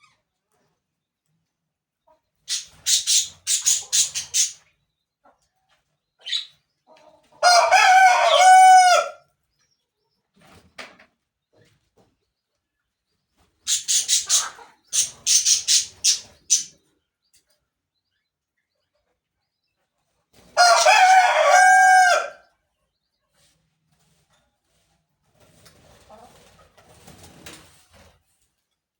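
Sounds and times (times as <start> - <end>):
rooster crowing: 7.4 - 9.2, 20.6 - 22.4.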